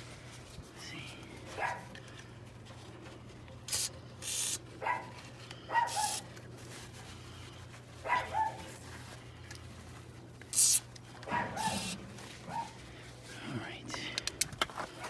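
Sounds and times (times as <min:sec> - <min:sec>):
dog barking: 0:01.6 - 0:01.9, 0:04.8 - 0:06.2, 0:08.0 - 0:08.7, 0:11.3 - 0:12.8
hissing bursts: 0:03.7 - 0:04.6, 0:05.9 - 0:06.2, 0:10.5 - 0:10.9, 0:11.6 - 0:12.1.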